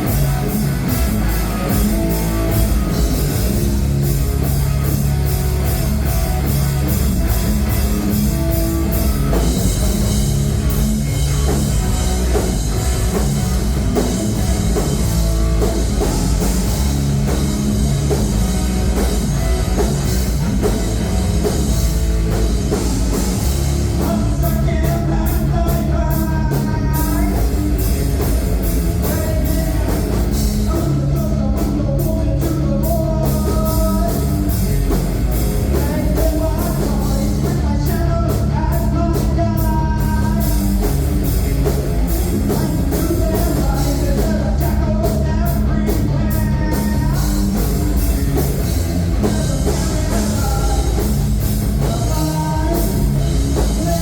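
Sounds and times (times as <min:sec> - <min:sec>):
heavy rock band playing: 0:00.0 - 0:54.0
person singing: 0:22.8 - 0:41.0, 0:42.2 - 0:47.8, 0:49.2 - 0:54.0.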